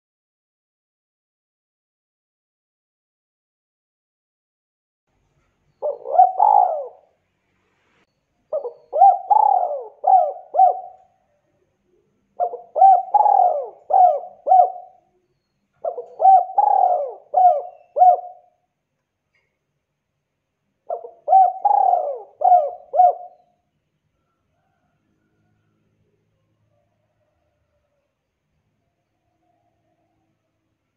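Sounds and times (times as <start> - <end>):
dove cooing: 5.8 - 7.2, 8.5 - 11.2, 11.9 - 15.1, 15.8 - 18.6, 20.9 - 23.6.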